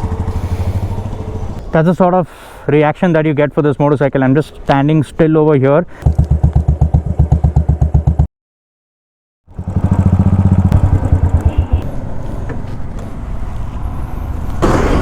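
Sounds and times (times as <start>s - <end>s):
motorcycle engine idling: 0.0s - 1.6s, 6.0s - 8.3s, 9.5s - 12.1s.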